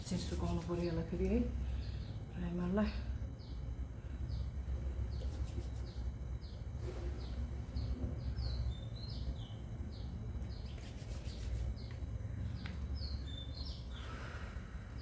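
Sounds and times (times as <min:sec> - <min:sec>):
bird chirping: 0:05.1 - 0:14.2.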